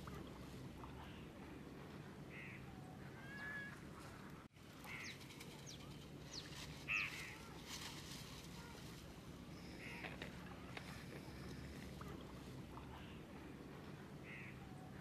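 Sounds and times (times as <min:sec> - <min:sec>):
short bird calls: 0:14.2 - 0:15.0.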